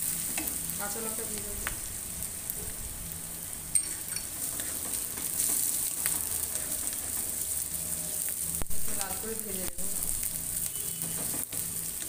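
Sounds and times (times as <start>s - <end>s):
onions sizzling in hot oil: 0.0s - 12.0s
wooden spatula stirring: 3.8s - 7.4s.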